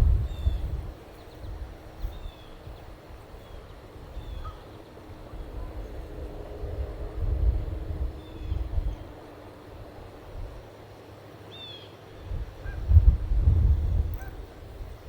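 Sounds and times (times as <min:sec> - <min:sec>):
wind buffeting the microphone: 0:00.0 - 0:09.2, 0:12.2 - 0:15.0.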